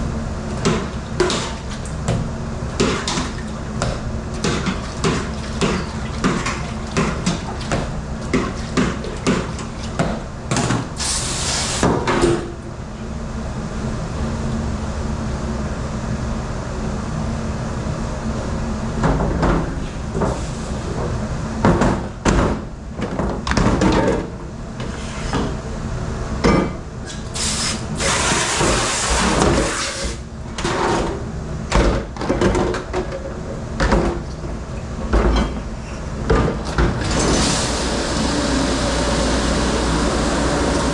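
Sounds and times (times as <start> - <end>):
machine hum: 37.0 - 40.9.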